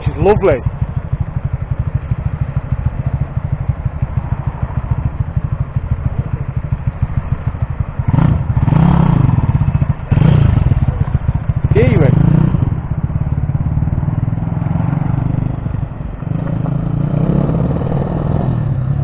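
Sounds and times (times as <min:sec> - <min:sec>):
small motorbike engine revving: 0:08.0 - 0:12.7.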